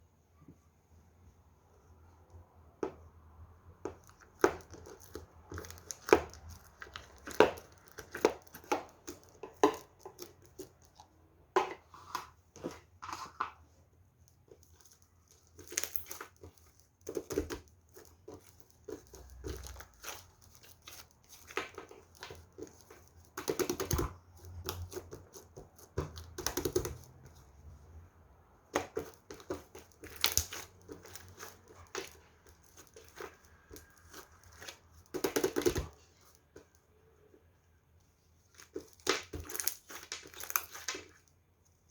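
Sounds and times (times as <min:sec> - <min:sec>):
slime squishing sticky pops: 0:28.7 - 0:35.9.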